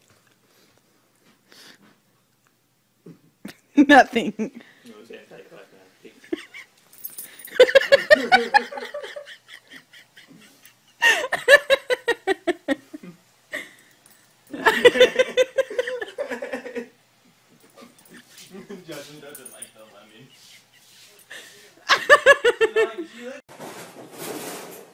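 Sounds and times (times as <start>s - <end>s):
person laughing: 7.5s - 13.8s, 14.5s - 16.9s, 20.0s - 23.4s.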